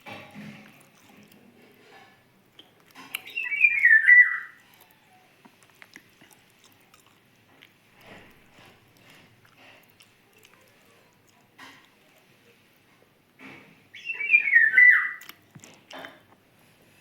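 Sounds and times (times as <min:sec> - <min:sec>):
small bird singing: 0:02.6 - 0:04.6, 0:13.9 - 0:15.3
faint bird chirps: 0:03.2 - 0:05.3, 0:13.9 - 0:15.3.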